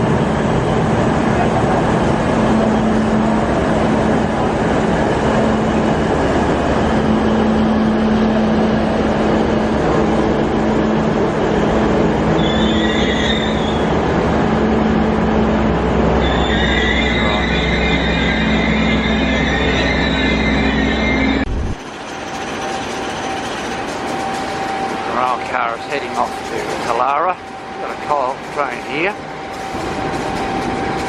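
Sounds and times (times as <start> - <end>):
railcar rumbling on rails: 0.0 - 31.0
train wheels squealing: 12.3 - 14.0, 16.2 - 31.0.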